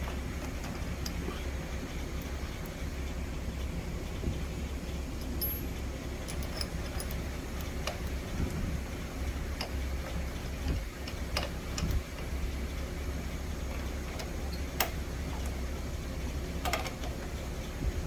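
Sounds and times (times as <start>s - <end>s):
milling machine humming: 0.0s - 18.0s
sharp metallic clicks: 13.7s - 15.6s.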